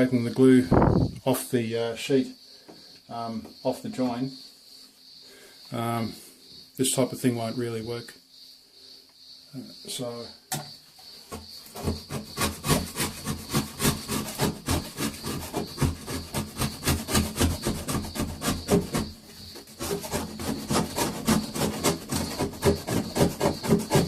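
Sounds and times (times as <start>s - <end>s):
scraper scraping glue off wall: 11.3s - 24.0s.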